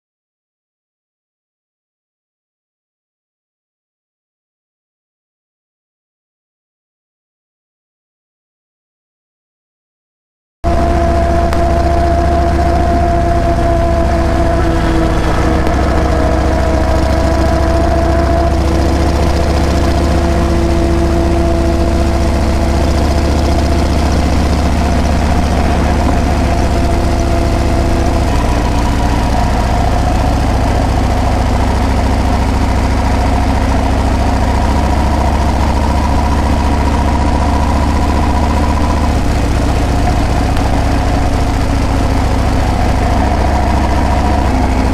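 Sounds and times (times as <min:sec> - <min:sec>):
motorcycle engine running: 0:10.7 - 0:44.9.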